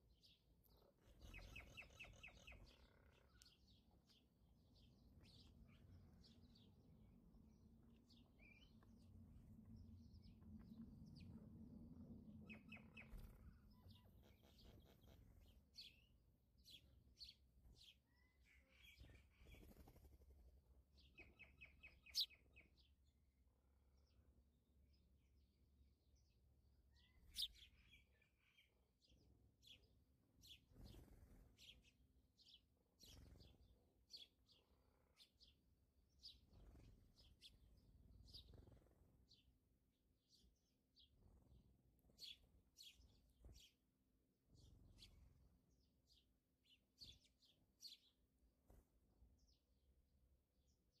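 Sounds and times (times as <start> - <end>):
faint bird chirps: 0.0 - 6.7, 12.4 - 20.1, 21.0 - 23.0, 26.8 - 28.9, 29.6 - 39.6.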